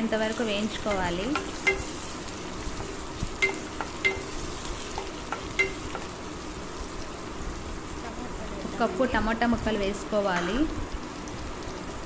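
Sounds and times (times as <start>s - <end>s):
vegetables sizzling in hot oil: 0.0s - 12.0s
spoon clicking against pan: 3.4s - 4.4s, 5.0s - 6.1s.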